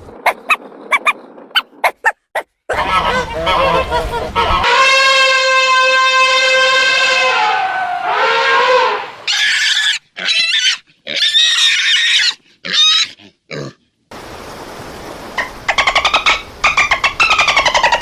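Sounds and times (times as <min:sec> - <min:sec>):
pig squealing: 0:07.2 - 0:13.8.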